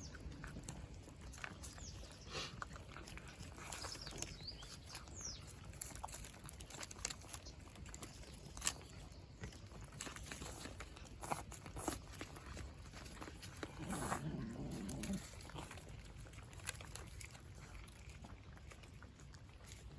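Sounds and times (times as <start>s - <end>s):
cats eating with clicks and crunches: 0.0s - 19.9s
low steady background rumble: 0.0s - 19.9s.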